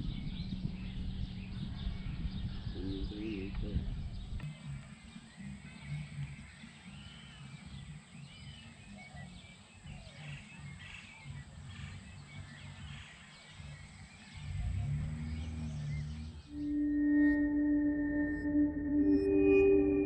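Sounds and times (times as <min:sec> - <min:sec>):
low steady rumble: 0:00.0 - 0:04.8
birds chirping: 0:00.0 - 0:20.0.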